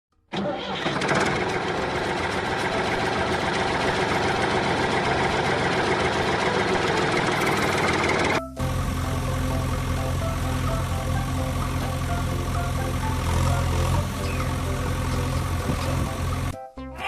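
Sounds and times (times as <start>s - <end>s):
engine-like mechanical rattle: 0.6s - 8.8s.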